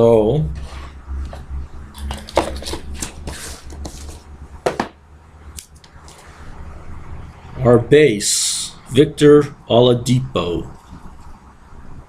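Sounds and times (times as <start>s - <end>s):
trading cards being shuffled: 2.0s - 4.3s.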